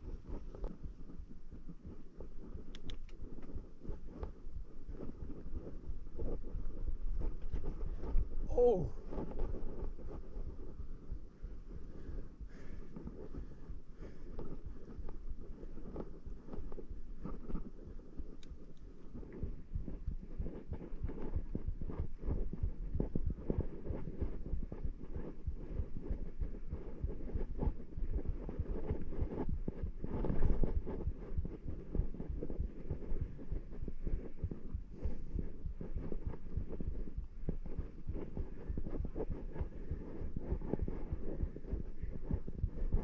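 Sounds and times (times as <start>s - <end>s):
thumping on microphone: 19.4s - 43.0s.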